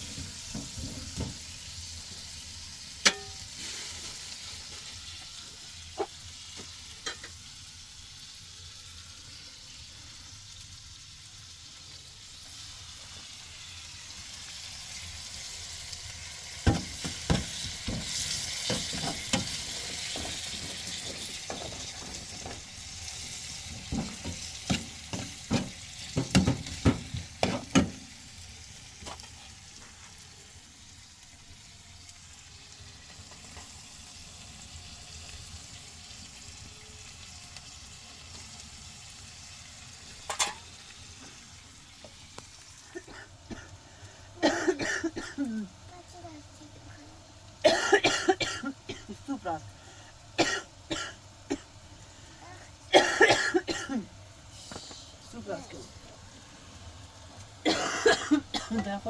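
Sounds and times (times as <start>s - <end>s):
food sizzling in a pan: 0.0s - 59.0s
utensil clinking on pan: 3.0s - 3.5s, 40.3s - 40.7s.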